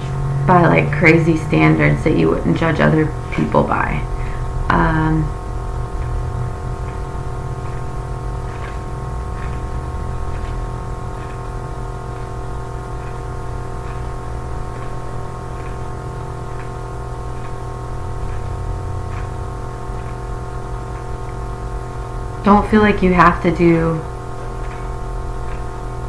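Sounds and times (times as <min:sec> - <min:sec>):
ambient music drone: 0:00.0 - 0:26.0
faint small ticks: 0:05.9 - 0:22.3, 0:24.1 - 0:26.0.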